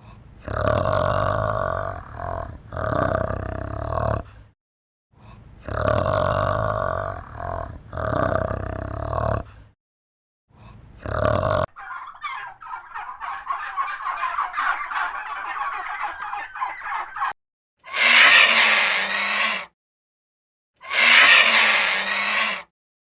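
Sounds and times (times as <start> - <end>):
harsh animal call: 11.0 - 19.7, 20.8 - 22.7
turkey gobbling: 11.7 - 17.4.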